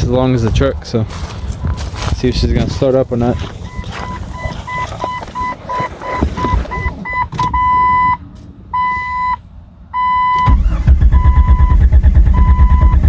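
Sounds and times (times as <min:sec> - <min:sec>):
dashboard warning chime beeping: 0:02.6 - 0:11.8
engine with loud exhaust pulses: 0:10.4 - 0:13.0.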